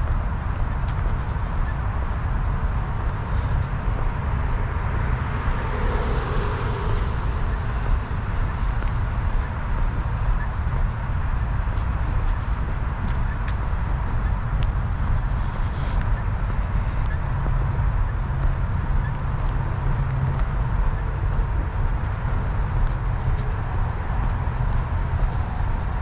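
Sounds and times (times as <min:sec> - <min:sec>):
wind rumble on microphone: 0:00.0 - 0:26.0
vehicle passing by: 0:02.9 - 0:10.0.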